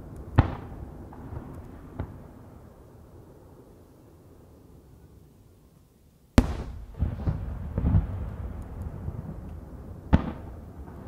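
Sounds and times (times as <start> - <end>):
firework shells exploding: 6.4 - 9.5
rolling echoes: 6.4 - 10.5.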